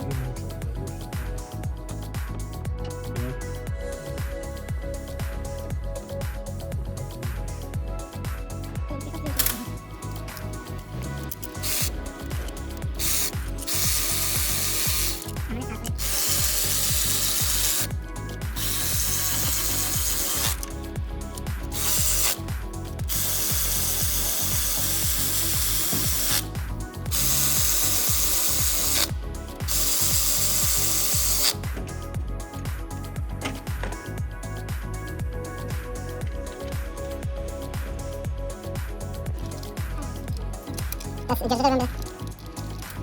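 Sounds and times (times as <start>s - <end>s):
background music with steady beat: 0.0s - 43.0s
power tool running in bursts: 13.0s - 15.3s, 16.0s - 17.9s, 18.6s - 20.7s.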